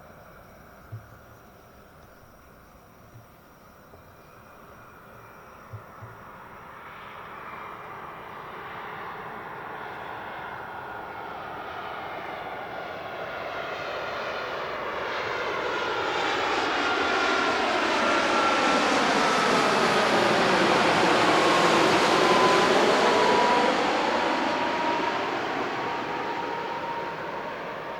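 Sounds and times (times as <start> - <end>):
thin engine whine: 3.9 - 27.9
jet engines roaring: 7.3 - 27.9.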